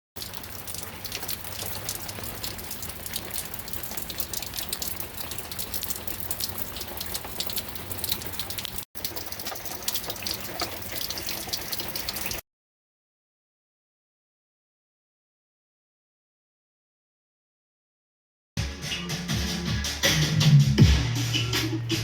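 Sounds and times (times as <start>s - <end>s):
steady rain falling: 0.2s - 12.4s.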